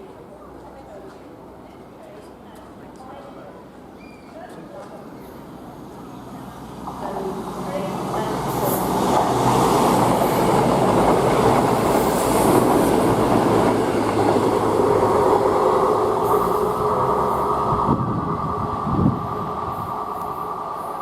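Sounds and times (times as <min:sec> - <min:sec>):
diesel train engine: 0:05.1 - 0:21.0
train wheel noise: 0:06.6 - 0:21.0.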